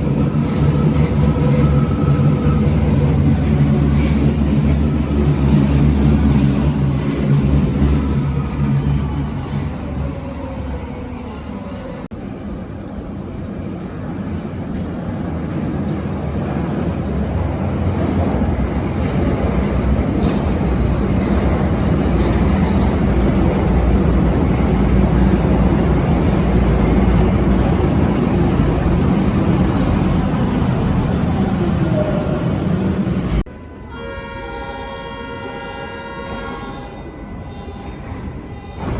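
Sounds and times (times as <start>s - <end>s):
train rumbling on track: 0.0s - 38.9s.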